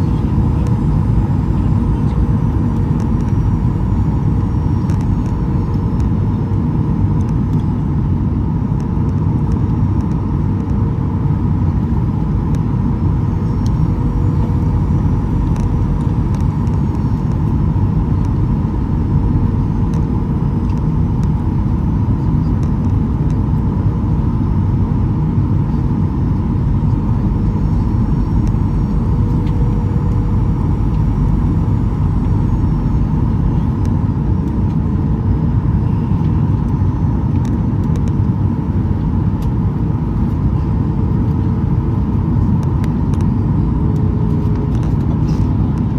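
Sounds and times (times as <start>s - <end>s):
faint steady tone: 0.0s - 6.5s, 12.8s - 20.8s, 25.6s - 34.8s
engine and airflow roar: 0.0s - 45.9s.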